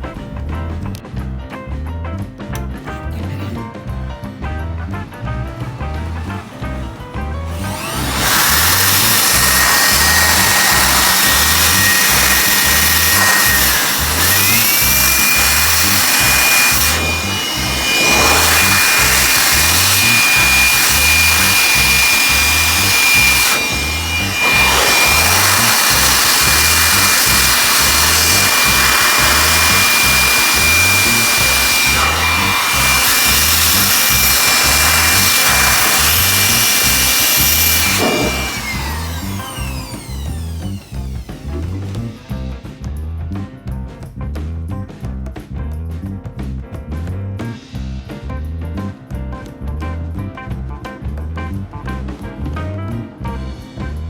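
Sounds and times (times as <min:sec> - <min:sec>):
power tool motor whining: 0:05.5 - 0:42.4.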